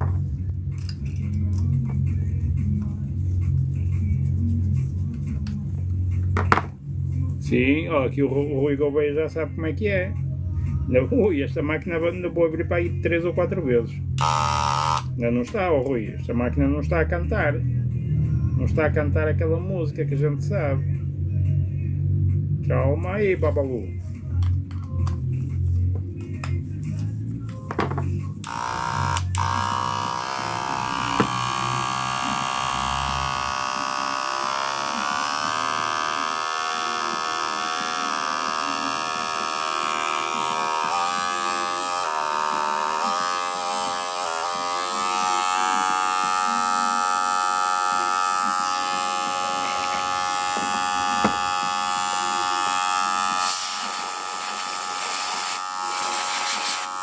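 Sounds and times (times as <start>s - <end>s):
electric hair clipper buzzing: 14.2s - 15.2s, 28.4s - 57.0s.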